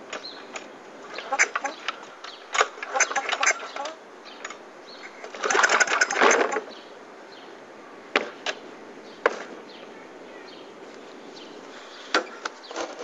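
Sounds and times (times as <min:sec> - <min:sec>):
lawn mower engine cranking: 0:00.0 - 0:06.8, 0:12.1 - 0:13.0.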